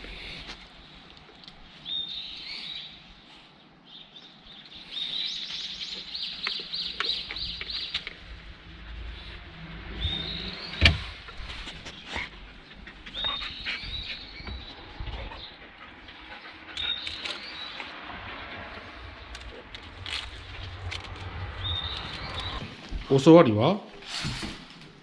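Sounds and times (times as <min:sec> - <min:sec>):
bird chirping: 0:03.8 - 0:23.2.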